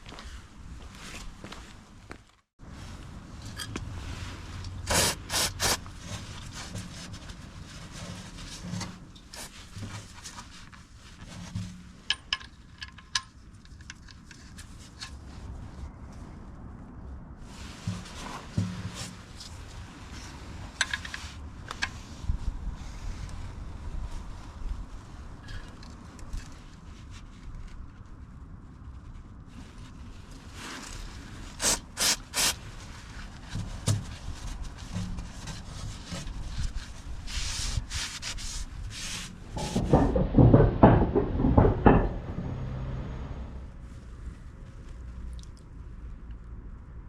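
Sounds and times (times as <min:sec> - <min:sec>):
rubbing or scraping: 0:02.6 - 0:16.3, 0:17.4 - 0:28.2, 0:29.1 - 0:45.1
tools clicking and knocking: 0:11.6 - 0:14.4, 0:39.5 - 0:42.7.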